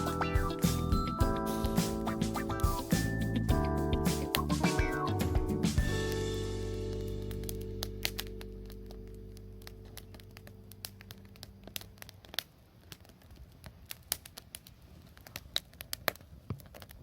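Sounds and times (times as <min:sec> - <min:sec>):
background music: 0:00.0 - 0:11.5
bonfire crackling and popping: 0:03.9 - 0:17.0.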